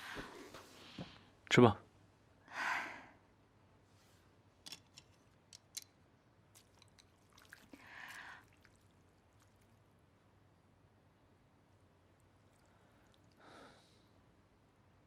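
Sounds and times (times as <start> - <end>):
soft breathy sound: 12.5 - 14.4.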